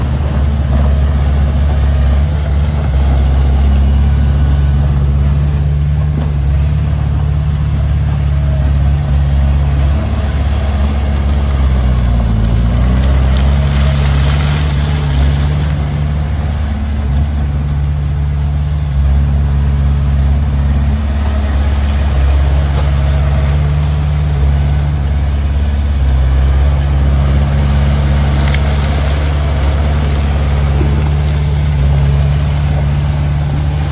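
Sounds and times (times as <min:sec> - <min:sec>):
bulldozer diesel engine running: 0:00.0 - 0:33.9.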